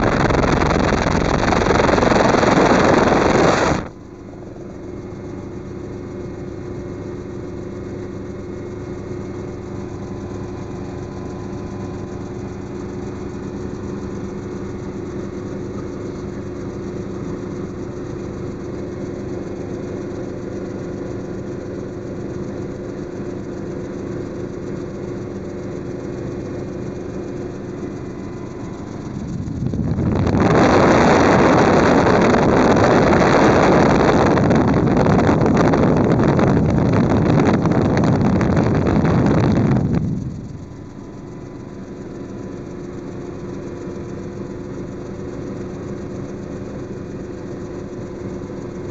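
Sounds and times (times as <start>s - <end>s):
rush of wind noise: 0.0s - 4.0s, 28.9s - 40.8s
helicopter engine and rotors: 0.0s - 48.9s.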